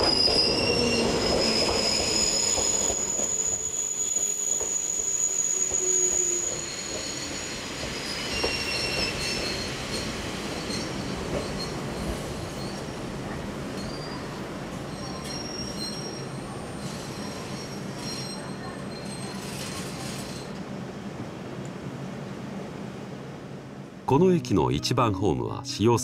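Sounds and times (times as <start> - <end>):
wheel and brake squeals: 0.0 - 13.0, 13.8 - 20.5.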